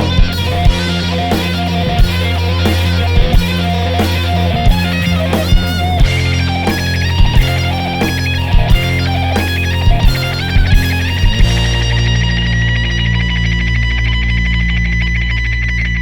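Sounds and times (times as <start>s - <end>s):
drums in steady beat: 0.0s - 12.6s
bass: 0.0s - 16.0s
electric guitar: 0.0s - 16.0s.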